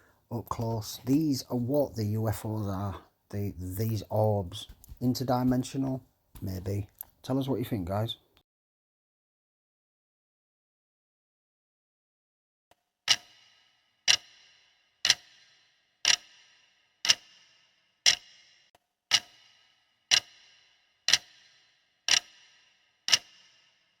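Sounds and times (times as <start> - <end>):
clock ticking with ring: 13.1 - 23.8.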